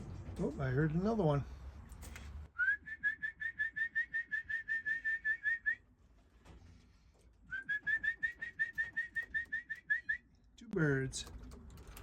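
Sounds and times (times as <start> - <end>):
person whistling short chirps: 2.6 - 5.8.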